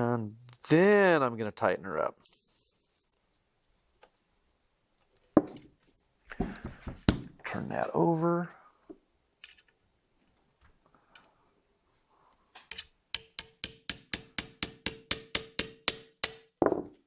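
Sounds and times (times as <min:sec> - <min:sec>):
small hammer tapping on metal: 0:12.7 - 0:16.5.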